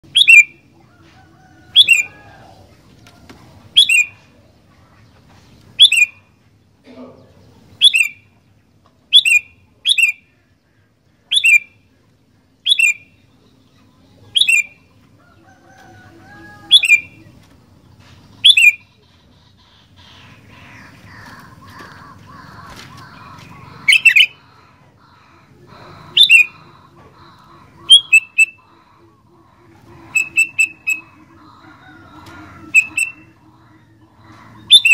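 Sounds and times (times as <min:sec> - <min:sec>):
bulbul calling: 0:00.0 - 0:00.7, 0:01.7 - 0:02.7, 0:03.7 - 0:04.3, 0:05.8 - 0:06.3, 0:07.6 - 0:08.4, 0:09.1 - 0:10.4, 0:11.2 - 0:11.8, 0:12.6 - 0:13.3, 0:14.3 - 0:14.9, 0:16.6 - 0:17.3, 0:18.4 - 0:34.9.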